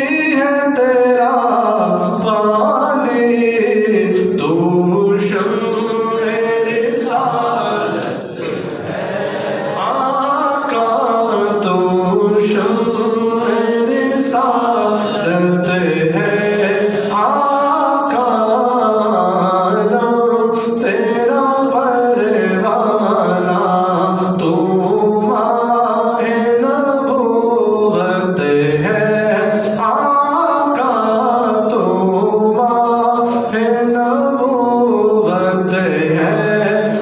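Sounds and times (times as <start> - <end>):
person singing devotional song: 0.0 - 37.0.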